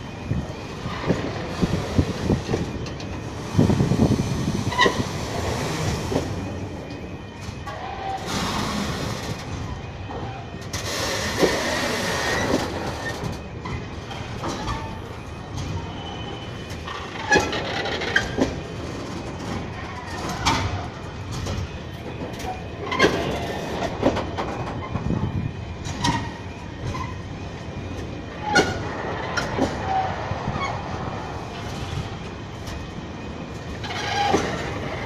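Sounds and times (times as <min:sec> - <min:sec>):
low train rumble: 0:00.0 - 0:35.0
train wheels clacking on rail joints: 0:01.0 - 0:06.5, 0:10.6 - 0:25.2, 0:27.9 - 0:30.8, 0:33.5 - 0:35.0.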